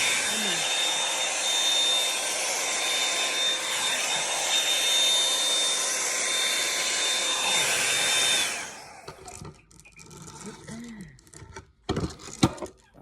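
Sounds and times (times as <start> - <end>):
hair dryer running: 0.0 - 9.4.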